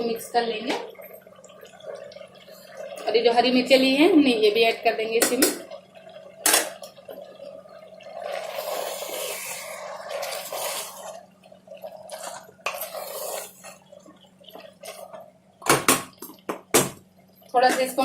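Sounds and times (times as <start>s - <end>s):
spoon scraping and sizzling in pot: 8.2s - 11.3s, 12.0s - 13.9s.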